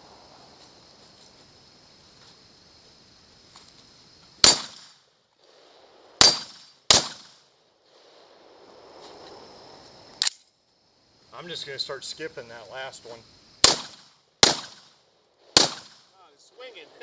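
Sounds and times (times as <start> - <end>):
gunshots: 4.4 - 5.0, 6.2 - 7.4, 13.6 - 17.0.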